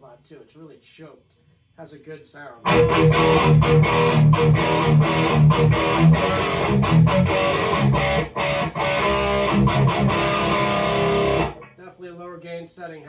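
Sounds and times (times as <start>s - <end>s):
distorted electric guitar riff: 2.6s - 11.8s.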